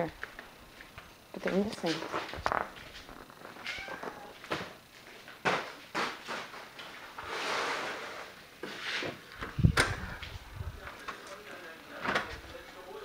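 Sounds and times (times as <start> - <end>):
scraping rustling noise: 5.9 - 10.9.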